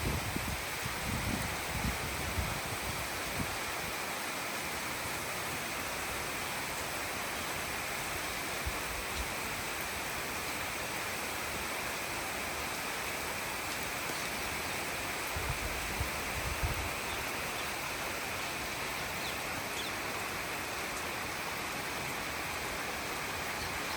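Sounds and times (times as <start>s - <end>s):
steady rainfall: 0.0s - 23.9s.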